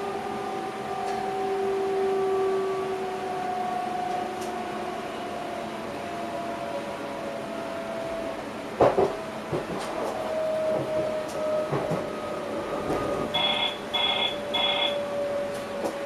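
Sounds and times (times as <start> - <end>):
train drive whine: 0.0 - 16.0
wheels clicking on track: 12.9 - 16.0.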